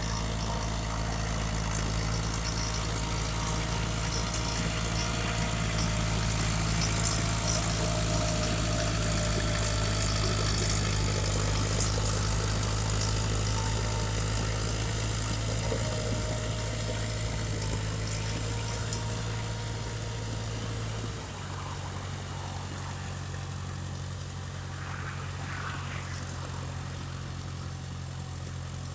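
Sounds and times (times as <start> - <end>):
tractor diesel engine running: 0.0 - 28.9.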